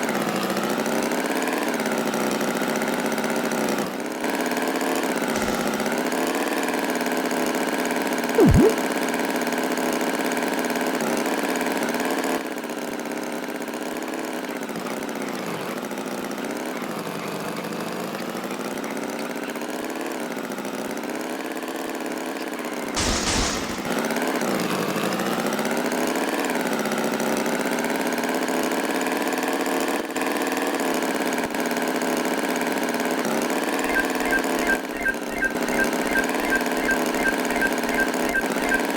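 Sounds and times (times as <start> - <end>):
cartoon tractor engine: 5.3 - 6.0, 8.4 - 8.8, 22.9 - 24.1, 33.0 - 38.9
burst of noise: 8.4 - 8.8, 22.9 - 24.2
short loud blip: 8.4 - 8.8, 23.0 - 24.0.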